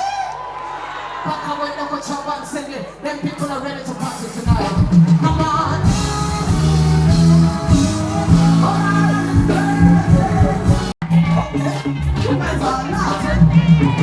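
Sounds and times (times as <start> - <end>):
live pop band playing: 3.4 - 14.0
heavy bass line: 4.5 - 14.0
person singing: 5.2 - 14.0.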